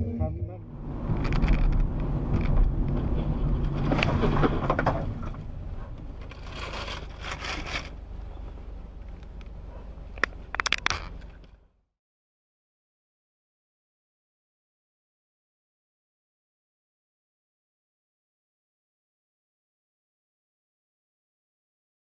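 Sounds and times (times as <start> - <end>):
vehicle rumble with scraping: 0.0 - 11.9.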